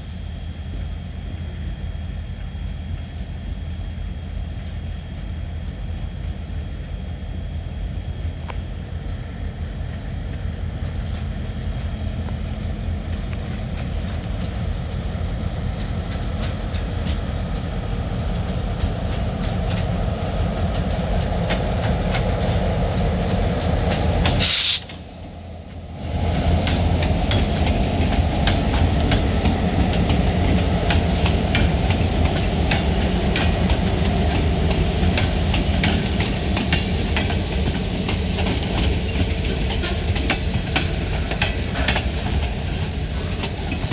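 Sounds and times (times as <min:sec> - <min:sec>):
diesel locomotive rumbling: 0:00.0 - 0:43.9
short sharp hiss: 0:24.4 - 0:25.0.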